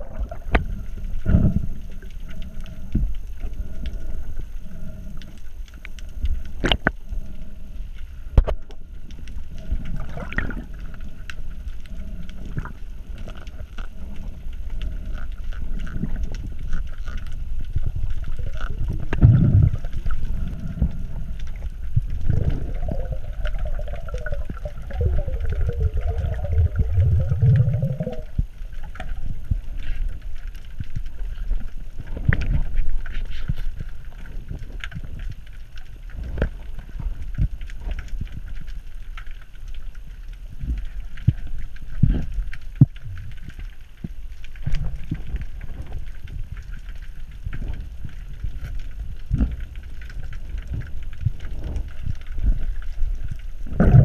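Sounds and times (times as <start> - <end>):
water churning: 0.0 - 7.4, 8.5 - 29.7
underwater clicks: 0.0 - 54.0
underwater low rumble: 0.0 - 54.0.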